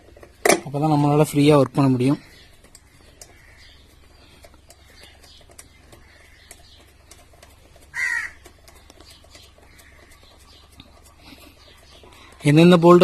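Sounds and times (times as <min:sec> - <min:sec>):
faint scattered clicks: 0:01.5 - 0:13.0
crow cawing: 0:07.9 - 0:08.4.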